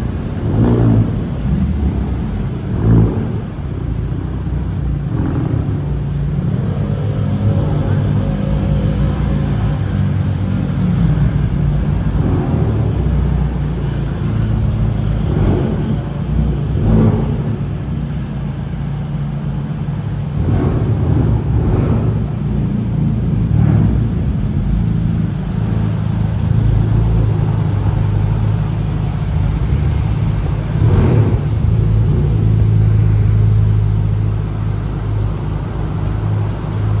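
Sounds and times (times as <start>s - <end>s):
car engines idling: 0.0s - 37.0s.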